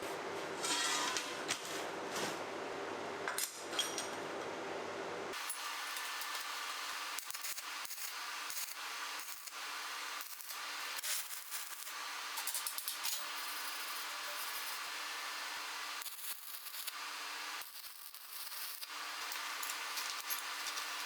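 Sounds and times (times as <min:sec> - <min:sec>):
welding arc crackling hiss: 0:05.3 - 0:21.0
welding arc pops: 0:05.4 - 0:21.0.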